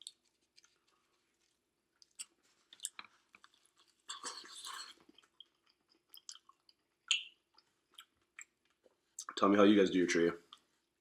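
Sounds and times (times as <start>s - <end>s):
chewing food: 0.0s - 9.4s
wet mouth clicks: 2.0s - 8.6s.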